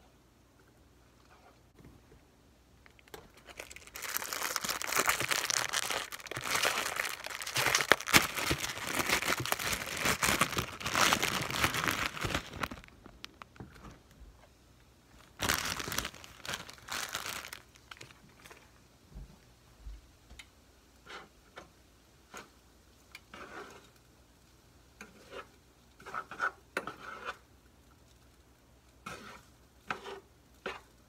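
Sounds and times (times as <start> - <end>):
plastic wrapper crinkling and tearing: 2.8 - 14.2, 15.2 - 18.7.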